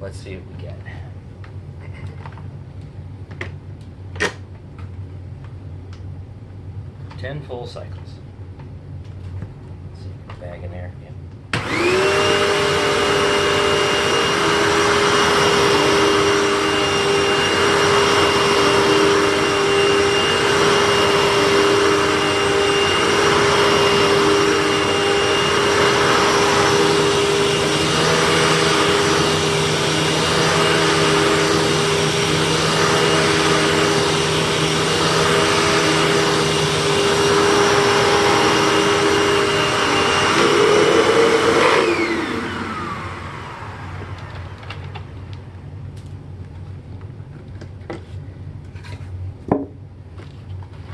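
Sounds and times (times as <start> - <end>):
upright vacuum on carpet: 11.5 - 45.4.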